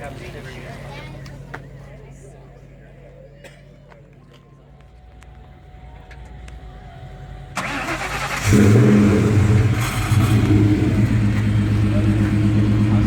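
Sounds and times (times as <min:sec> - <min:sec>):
car engine idling loudly: 0:05.4 - 0:13.0.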